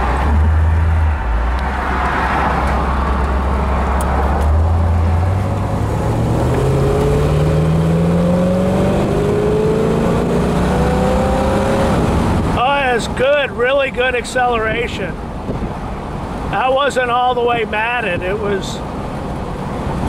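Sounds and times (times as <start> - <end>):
car engine accelerating: 0.0 - 12.6.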